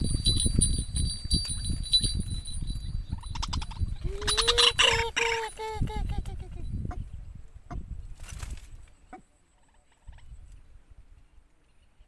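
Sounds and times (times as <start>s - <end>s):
high steady ringing tones: 0.0s - 6.9s.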